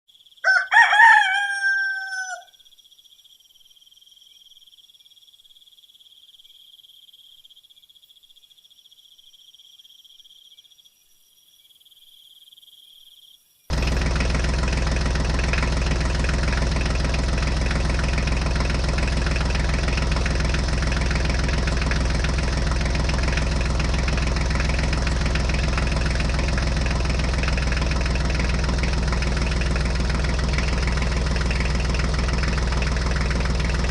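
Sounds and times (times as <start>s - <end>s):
rooster crowing: 0.4s - 2.6s
small engine idling: 13.7s - 33.9s.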